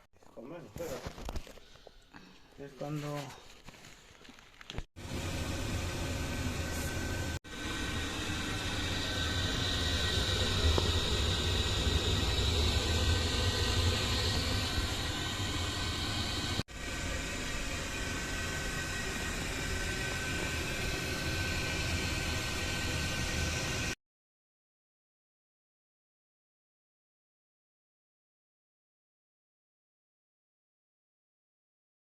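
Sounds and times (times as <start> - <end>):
faint steady whine: 5.0 - 24.0
oil burner fan and flame noise: 5.0 - 24.0.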